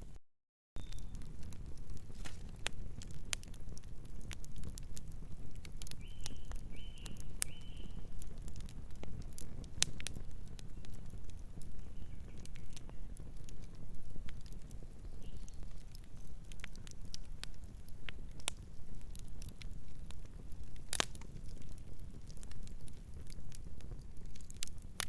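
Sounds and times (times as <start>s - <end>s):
low rumble of burning: 0.8s - 25.0s
wood fire crackling and popping: 0.8s - 25.0s
distant bird calls: 6.0s - 8.0s.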